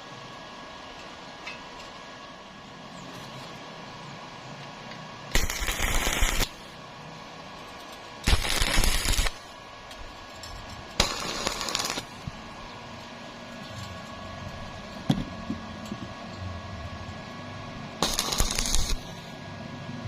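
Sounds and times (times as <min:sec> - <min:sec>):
steady machine hum: 0:03.7 - 0:20.0
welding arc crackle: 0:05.3 - 0:06.8, 0:07.6 - 0:12.6, 0:18.0 - 0:19.4.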